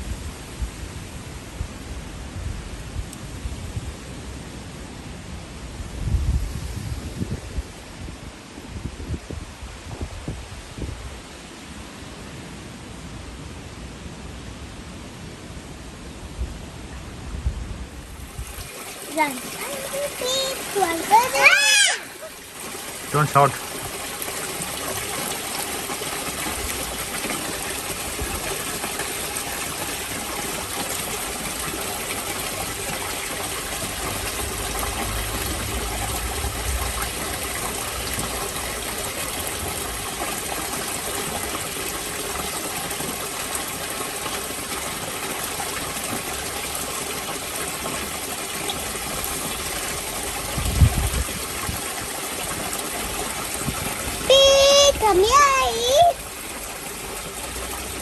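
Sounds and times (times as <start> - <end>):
running water rushing: 18.0 - 58.0.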